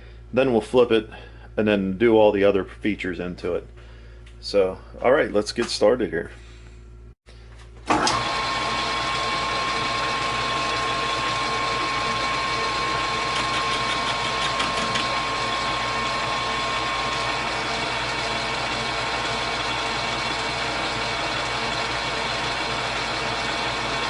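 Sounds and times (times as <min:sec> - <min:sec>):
metal lathe motor hum: 0:07.9 - 0:24.0.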